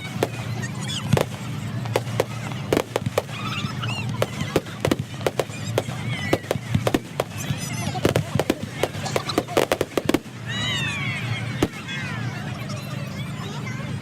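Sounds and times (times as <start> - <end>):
fireworks bangs and crackles: 0.0 - 11.9
wavering firework squeals: 0.0 - 13.4.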